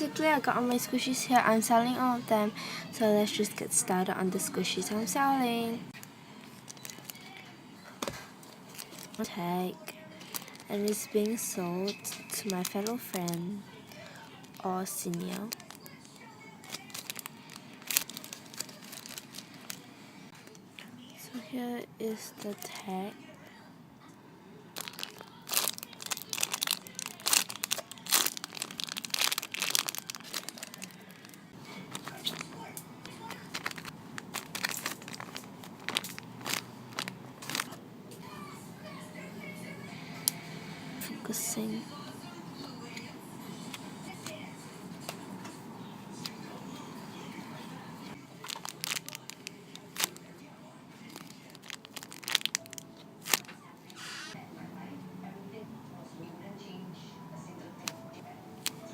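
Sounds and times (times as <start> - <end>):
packaging crinkling: 6.0 - 20.5, 24.8 - 37.8, 48.3 - 50.2, 51.0 - 54.4
sharp crackles: 24.8 - 32.5, 33.1 - 37.8, 51.2 - 54.2.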